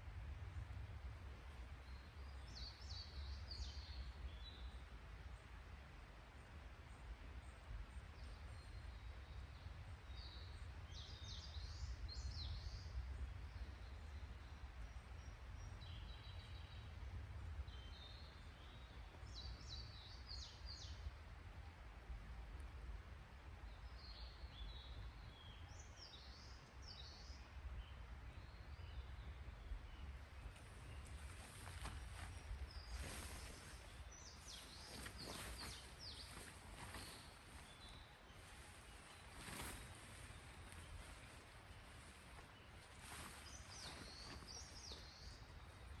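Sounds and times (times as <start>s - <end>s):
steady low rumble: 27.6s - 46.0s
small bird chirping: 30.9s - 46.0s.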